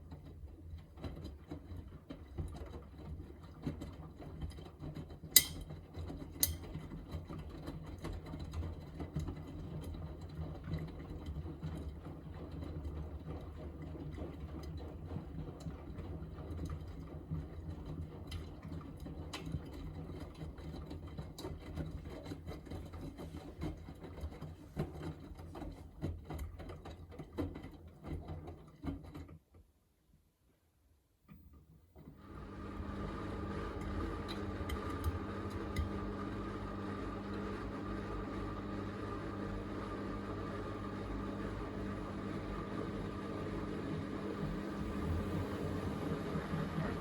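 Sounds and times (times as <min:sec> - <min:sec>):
washing machine motor hum: 0:32.2 - 0:47.0.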